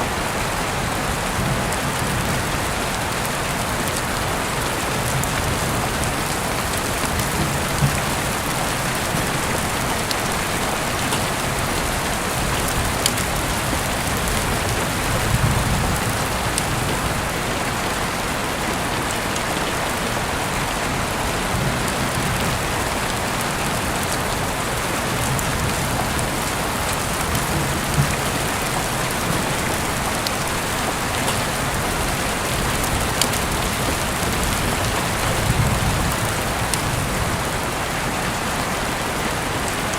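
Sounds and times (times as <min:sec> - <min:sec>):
rain falling: 0:00.0 - 0:39.9
sharp rain ticks: 0:00.0 - 0:39.9.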